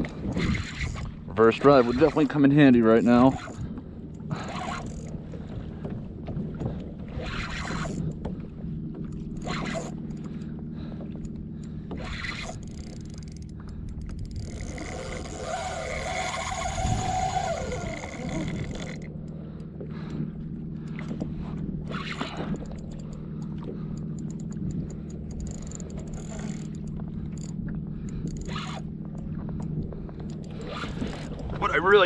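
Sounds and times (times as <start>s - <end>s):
pedal drive mechanical drone: 0.0s - 32.0s
water sloshing: 0.0s - 32.0s
harsh rasping sound: 0.4s - 3.6s, 14.4s - 19.1s, 28.2s - 28.8s, 30.5s - 31.8s.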